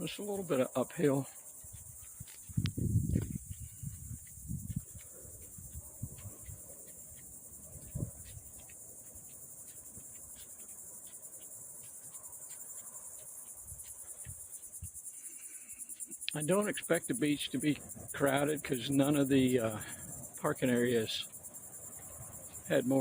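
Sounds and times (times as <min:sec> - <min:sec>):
insects chirping: 0:00.0 - 0:23.0
low thumps: 0:02.6 - 0:04.8.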